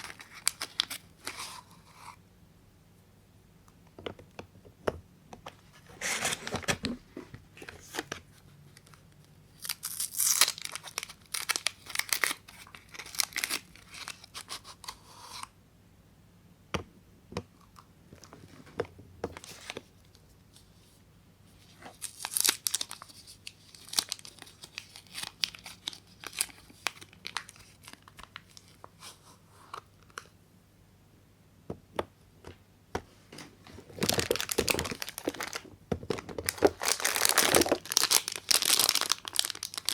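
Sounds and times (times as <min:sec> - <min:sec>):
wrappers tearing and crinkling: 0:00.0 - 0:01.5, 0:09.5 - 0:14.5, 0:21.9 - 0:28.8, 0:33.9 - 0:35.6, 0:36.4 - 0:39.9.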